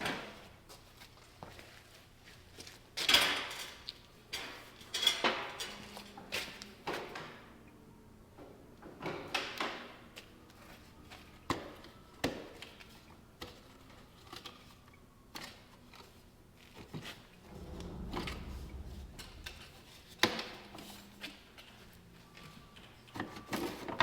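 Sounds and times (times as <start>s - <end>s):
low rumble: 17.4s - 20.8s.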